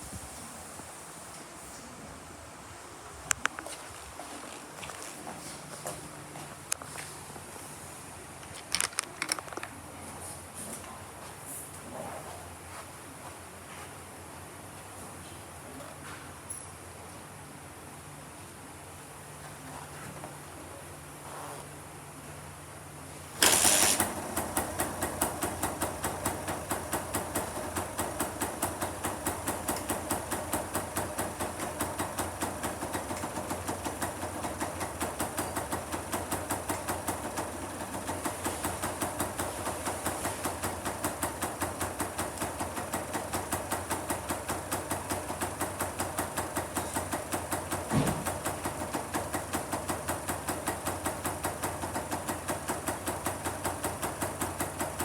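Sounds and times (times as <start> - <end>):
two-stroke engine idling: 23.4 - 55.0.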